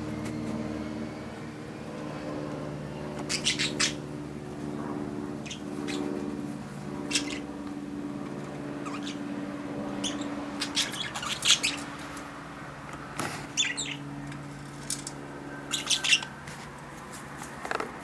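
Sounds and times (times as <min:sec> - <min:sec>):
budgerigar chirping: 0:03.3 - 0:04.0, 0:05.4 - 0:06.0, 0:07.1 - 0:07.5, 0:08.8 - 0:09.2, 0:10.0 - 0:11.9, 0:13.6 - 0:14.0, 0:15.7 - 0:16.3.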